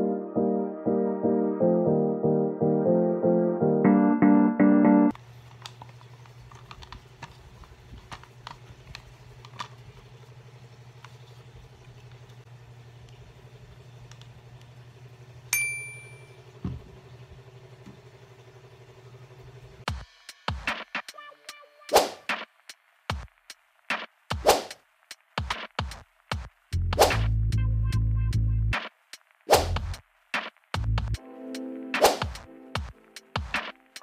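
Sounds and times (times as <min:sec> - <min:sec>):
low steady hum: 0:01.9 - 0:19.8
sharp glass clink: 0:15.6 - 0:16.4.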